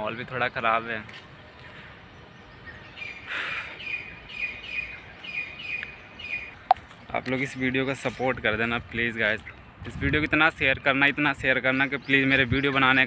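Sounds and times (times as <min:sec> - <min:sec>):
bird chirping: 0:00.0 - 0:09.8.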